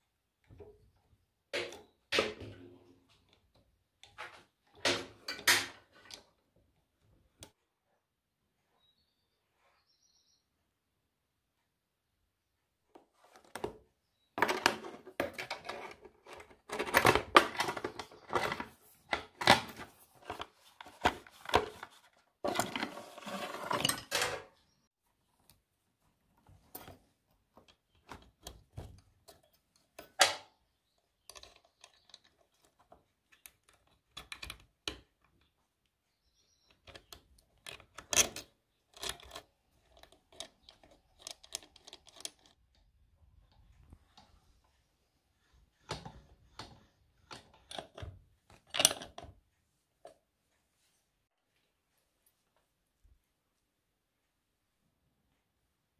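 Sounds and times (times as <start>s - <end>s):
metal parts and tools clattering: 14.4s - 24.6s.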